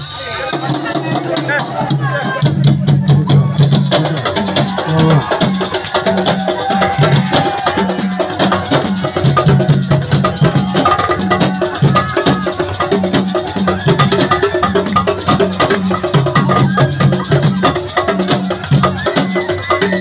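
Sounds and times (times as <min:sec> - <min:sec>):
fast dense drumming: 0:00.0 - 0:20.0
repeating low bass line: 0:03.0 - 0:05.9.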